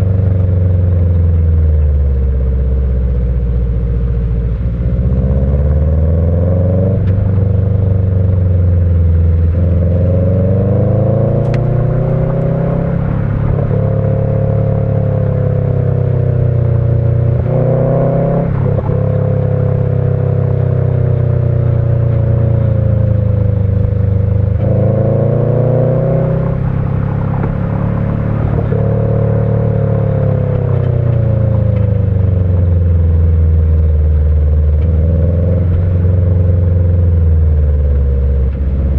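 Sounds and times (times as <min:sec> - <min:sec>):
boxer engine rumble: 0:00.0 - 0:17.9.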